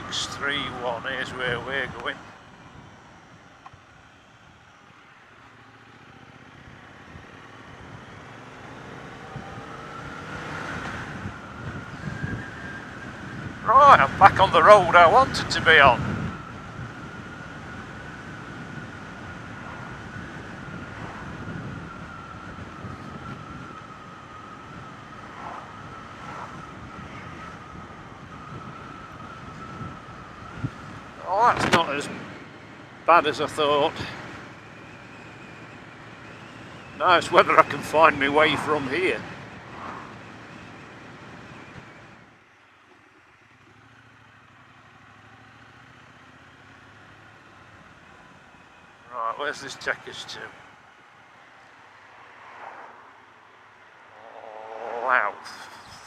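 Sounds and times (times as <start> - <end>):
motorcycle engine and road noise: 0.0 - 56.0
wind rushing over microphone: 9.1 - 32.5, 37.2 - 40.5
motorcycle engine idling: 42.4 - 49.1.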